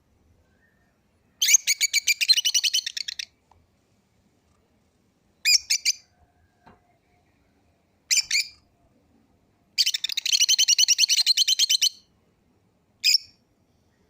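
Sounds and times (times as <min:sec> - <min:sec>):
lovebirds chirping: 0:00.4 - 0:03.4, 0:05.4 - 0:06.2, 0:06.9 - 0:08.7, 0:09.7 - 0:12.1.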